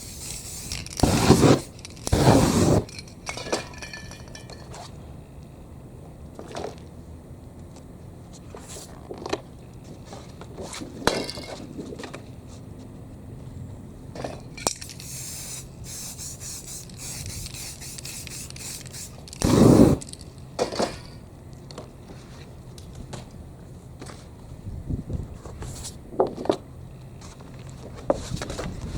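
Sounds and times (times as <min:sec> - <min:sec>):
spray paint can hissing: 0:00.0 - 0:03.0, 0:14.8 - 0:20.1.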